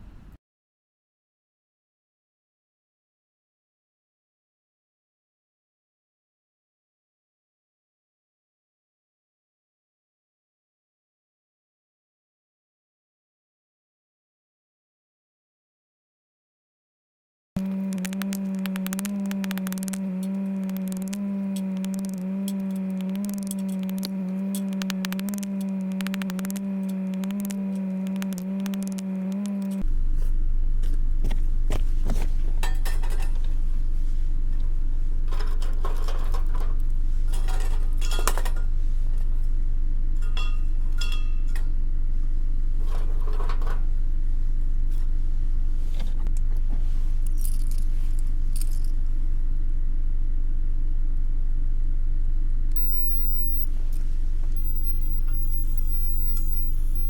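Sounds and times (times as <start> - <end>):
loud low buzzing hum: 17.6 - 57.0
metallic clinks and scrapes: 47.3 - 49.0
held tone: 52.8 - 53.8, 54.6 - 57.0.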